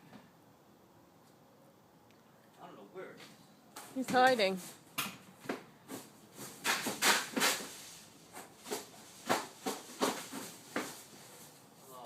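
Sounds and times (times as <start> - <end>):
sharp knocks and clatters: 6.4 - 11.0.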